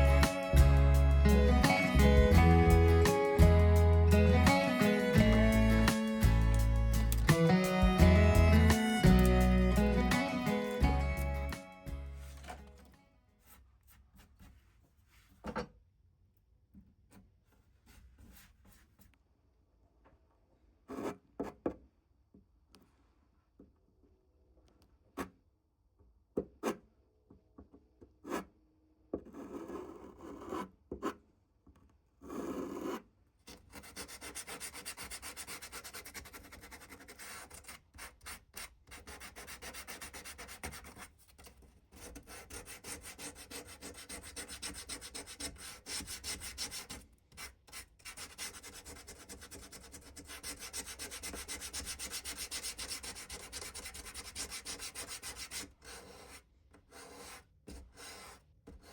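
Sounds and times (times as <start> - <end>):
sanding wood: 33.8 - 41.0, 42.0 - 47.0, 48.1 - 56.3.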